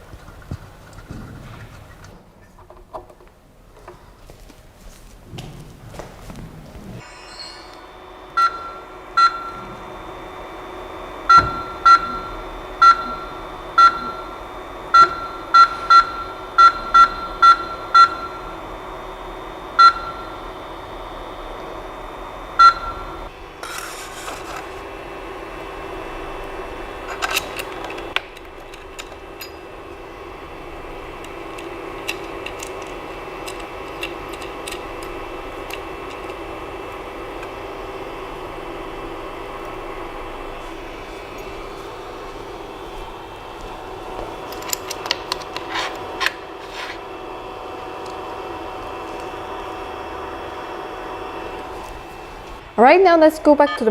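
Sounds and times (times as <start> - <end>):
steady hum: 0.0 - 53.9
control panel buzzer beeps: 7.2 - 10.1, 11.2 - 18.8, 19.7 - 20.5, 22.5 - 23.3, 53.6 - 53.9.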